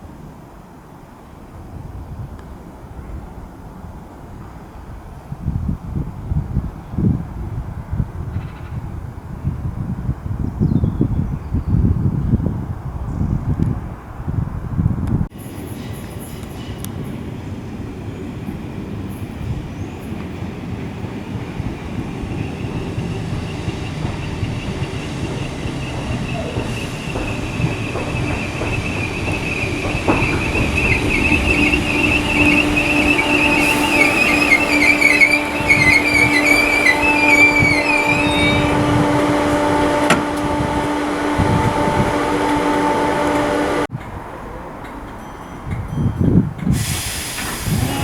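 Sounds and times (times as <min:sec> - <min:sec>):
electric train hum: 0:12.8 - 0:44.8, 0:46.7 - 0:48.0
high wavering wheel squeal: 0:21.6 - 0:43.9.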